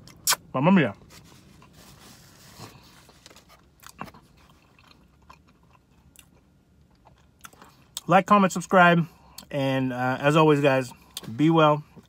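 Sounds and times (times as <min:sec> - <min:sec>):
person chewing food: 0:02.6 - 0:08.0.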